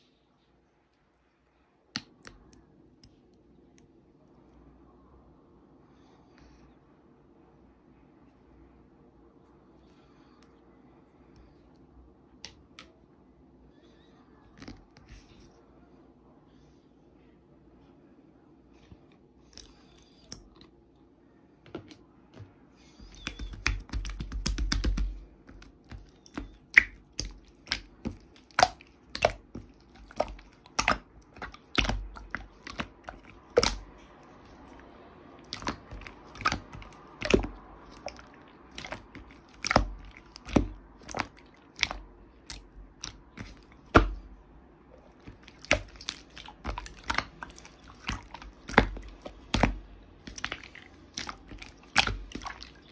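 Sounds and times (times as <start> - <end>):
slime crackling: 23.0 - 34.8, 35.4 - 44.4, 45.0 - 52.9
slime clicking and popping: 23.1 - 33.9, 35.4 - 44.3, 45.2 - 52.9.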